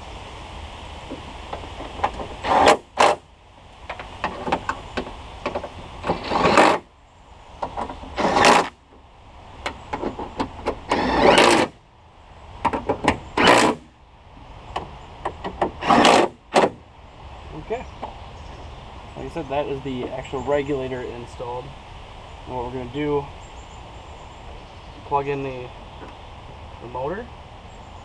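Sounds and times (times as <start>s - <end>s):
cordless drill running: 10.9s - 11.7s.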